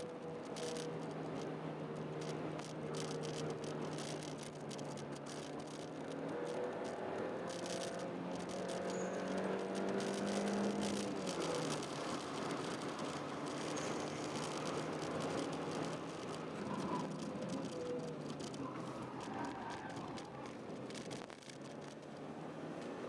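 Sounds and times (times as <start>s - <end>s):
light clicks and rattles: 0.0s - 23.0s.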